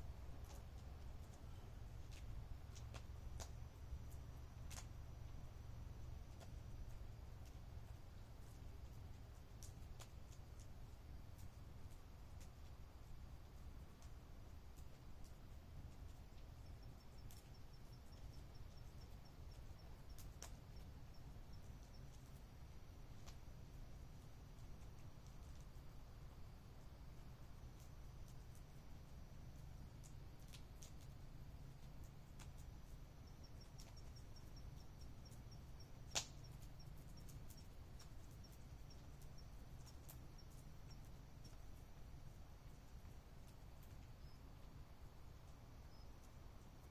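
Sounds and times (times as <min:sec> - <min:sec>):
campfire crackling: 0:00.0 - 0:46.9
faint high chirping: 0:16.1 - 0:26.5, 0:27.1 - 0:46.9.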